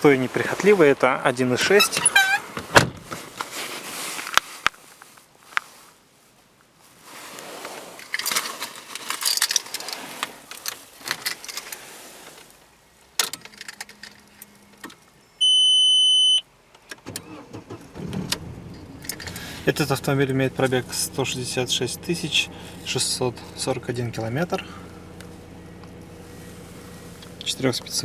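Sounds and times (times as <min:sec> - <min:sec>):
electronic dashboard beep: 0:15.4 - 0:16.4
car keys jangling and clicking: 0:16.9 - 0:20.8
low hum: 0:18.0 - 0:28.0.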